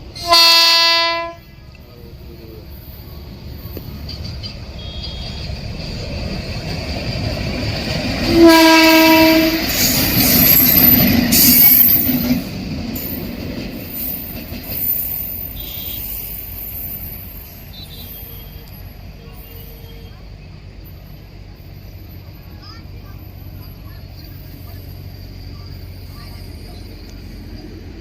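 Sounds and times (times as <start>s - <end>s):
train coaches rushing past: 0.0s - 28.0s
train horn blast: 0.1s - 1.5s, 4.8s - 5.5s, 8.3s - 9.8s, 15.6s - 16.2s.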